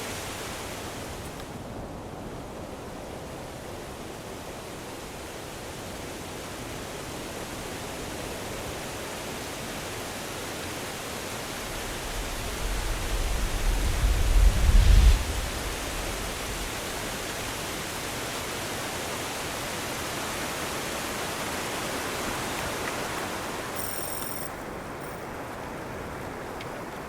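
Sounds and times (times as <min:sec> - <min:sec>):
steady rushing outdoor noise: 0:00.0 - 0:27.0.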